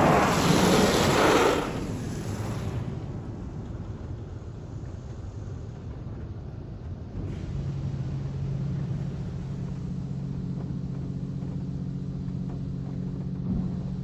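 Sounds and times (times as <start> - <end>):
rush of noise: 0.0 - 3.5.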